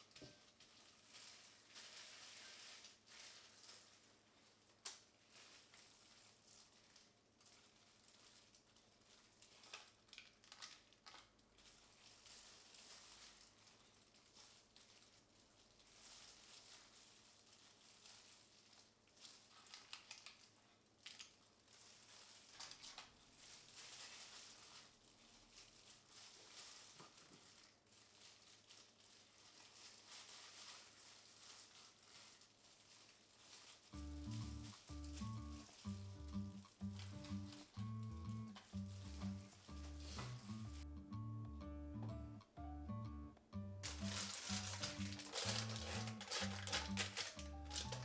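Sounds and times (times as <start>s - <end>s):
soft crinkling: 0.0s - 40.9s, 43.8s - 48.0s.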